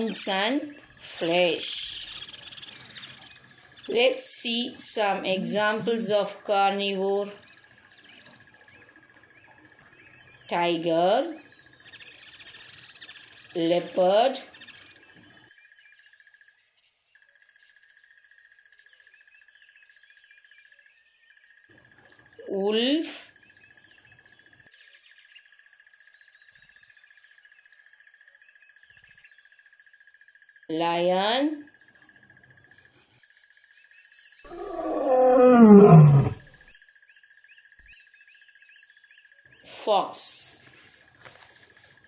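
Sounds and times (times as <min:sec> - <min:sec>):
bird chirps: 0:00.0 - 0:40.9
lion roaring: 0:34.5 - 0:36.6.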